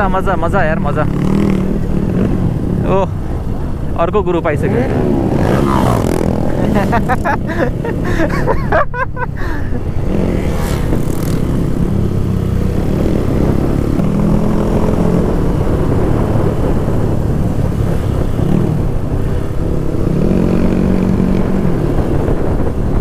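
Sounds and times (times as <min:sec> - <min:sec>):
motorcycle engine running: 0:00.0 - 0:08.7
steady low rush: 0:00.0 - 0:18.0.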